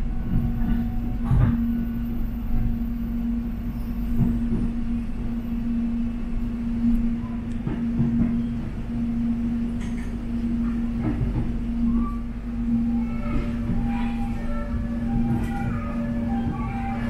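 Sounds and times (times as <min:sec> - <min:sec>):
electric train rumbling: 0:00.0 - 0:17.0
train motor hum: 0:00.0 - 0:17.0
train wheel knocks: 0:00.2 - 0:01.8, 0:04.0 - 0:04.9, 0:07.6 - 0:08.8, 0:09.8 - 0:11.6.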